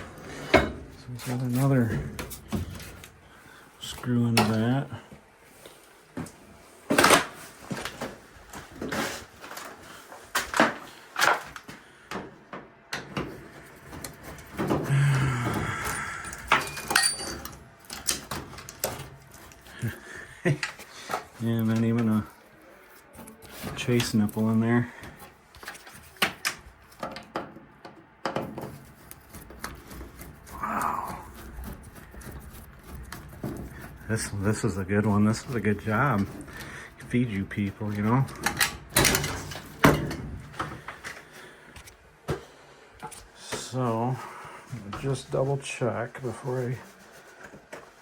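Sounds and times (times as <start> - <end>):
sheet-metal pipe clanking: 16.5 - 19.0.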